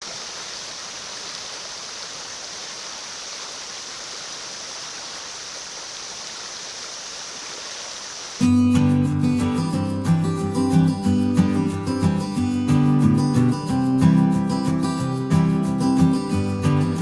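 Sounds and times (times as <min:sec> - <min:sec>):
stream rushing over rocks: 0:00.0 - 0:08.6
acoustic guitar music: 0:08.4 - 0:17.0.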